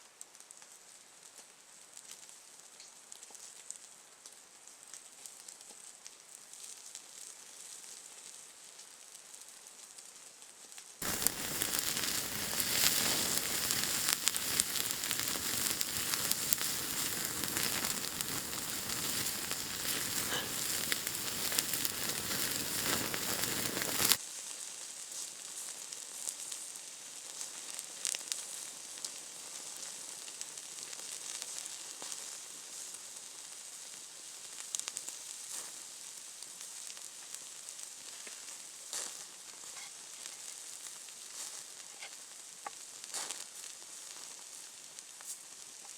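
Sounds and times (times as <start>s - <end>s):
food sizzling in a hot pan: 0.1s - 45.9s
pops and crackles: 11.0s - 45.9s.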